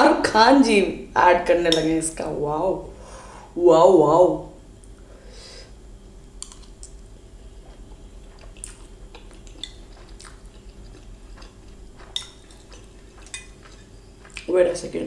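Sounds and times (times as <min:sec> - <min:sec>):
chewing: 0:06.4 - 0:14.5.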